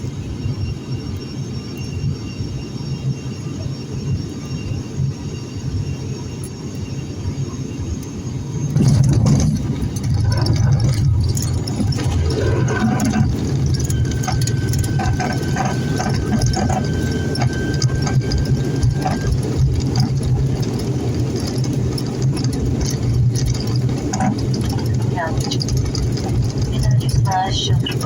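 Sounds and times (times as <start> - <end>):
turboprop engines drone: 0.0 - 28.0
cabin rattling: 8.8 - 28.0.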